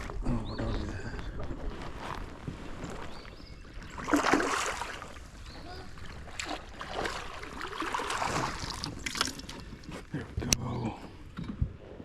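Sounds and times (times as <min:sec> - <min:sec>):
water splashing against kayak: 0:01.1 - 0:10.5.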